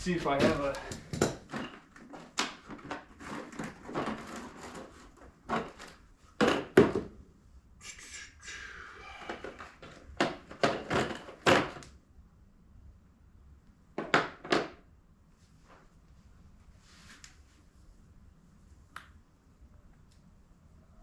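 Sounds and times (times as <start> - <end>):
scraping and rustling: 0.2 - 6.2
tools knocking and clattering: 0.3 - 4.8, 5.5 - 7.1, 9.3 - 11.9.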